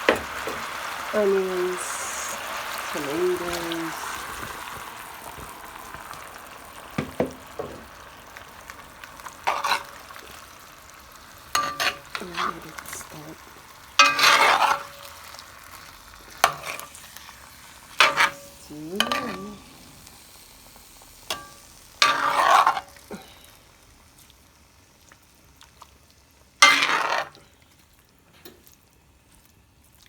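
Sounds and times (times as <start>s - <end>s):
frying sizzle: 0.0s - 30.0s
spoon stirring and scraping pot: 9.2s - 10.4s, 11.5s - 13.3s, 14.0s - 15.4s, 16.3s - 17.3s, 17.9s - 19.7s, 21.3s - 23.0s, 26.6s - 29.5s.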